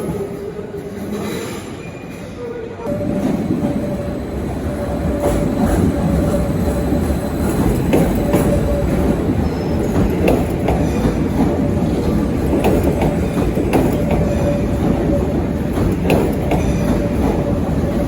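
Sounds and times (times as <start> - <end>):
train rumbling: 0.0 - 18.0
wheels squealing on rails: 0.0 - 18.0.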